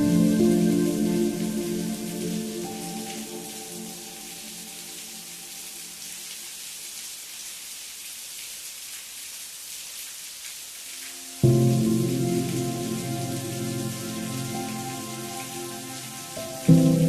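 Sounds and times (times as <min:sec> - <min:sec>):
soft sustained music chords: 0:00.0 - 0:05.8, 0:11.3 - 0:17.0
steady rain falling: 0:00.0 - 0:17.0.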